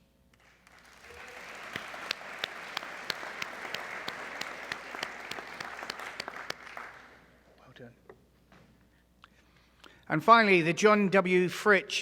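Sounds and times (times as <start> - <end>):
louder individual claps: 0.3 - 7.2
audience applauding: 0.4 - 7.4.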